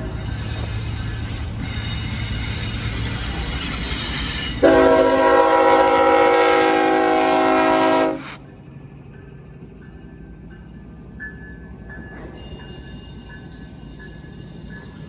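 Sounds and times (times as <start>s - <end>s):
freight train rumbling: 0.0s - 15.0s
locomotive air horn blast: 4.6s - 8.4s.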